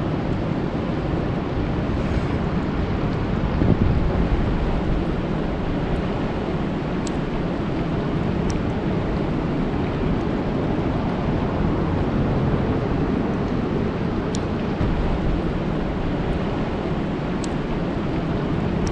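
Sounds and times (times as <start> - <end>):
faint drip ticks: 17.4 - 17.6.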